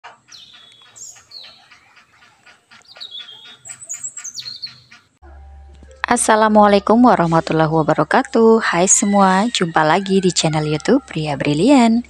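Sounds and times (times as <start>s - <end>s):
small birds chirping: 0.1s - 5.2s.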